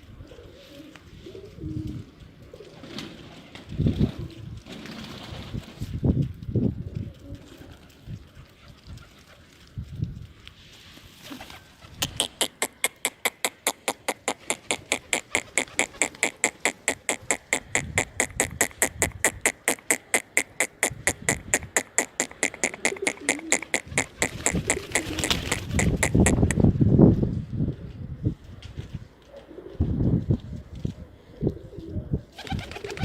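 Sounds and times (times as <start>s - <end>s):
sharp clicks: 12.0s - 26.6s.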